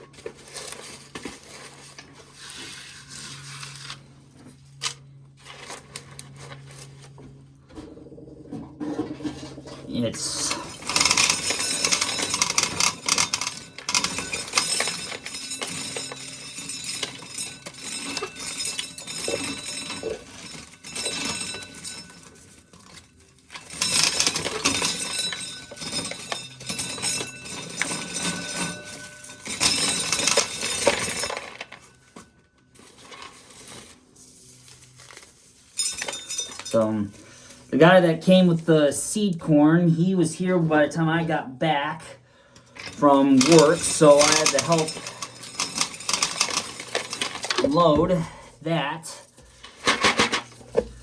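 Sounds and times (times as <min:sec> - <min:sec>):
corn kernels clattering into a pail: 0:42.9 - 0:48.2.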